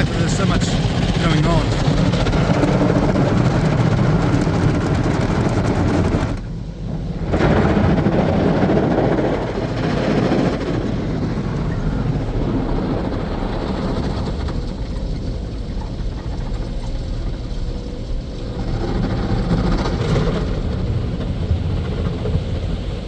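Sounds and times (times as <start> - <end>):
car wash brushes and water spray: 0.0 - 12.6.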